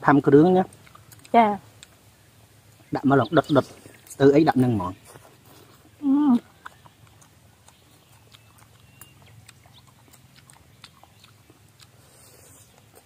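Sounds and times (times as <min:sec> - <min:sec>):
person chewing food: 0:00.6 - 0:02.9, 0:03.6 - 0:13.0
mouth clicks and smacks: 0:05.6 - 0:13.0.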